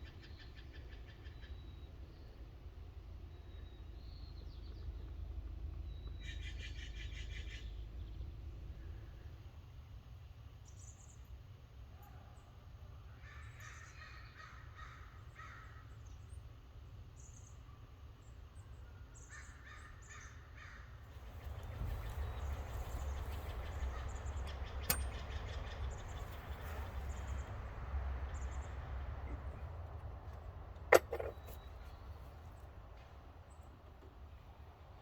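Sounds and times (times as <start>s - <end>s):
crows cawing: 13.2s - 15.8s, 19.3s - 20.9s
sharp click: 24.8s - 25.4s.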